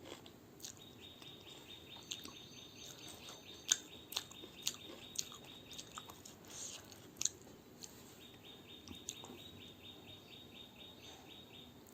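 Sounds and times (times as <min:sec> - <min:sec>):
chewing with crisp crunches: 0:00.0 - 0:08.1
faint chirping: 0:00.6 - 0:07.0, 0:07.8 - 0:11.9.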